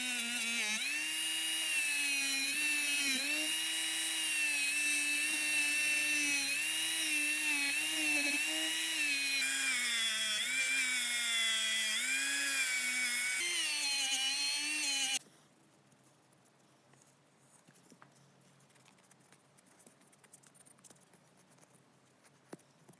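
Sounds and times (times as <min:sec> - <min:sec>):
rotary tool running: 0:00.0 - 0:15.2.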